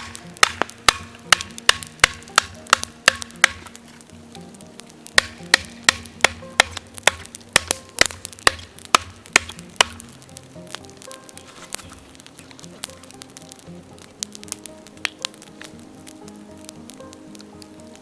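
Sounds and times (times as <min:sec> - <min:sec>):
sharp wooden knocks: 0:00.0 - 0:03.8, 0:05.2 - 0:10.1
faint background music: 0:00.0 - 0:18.0.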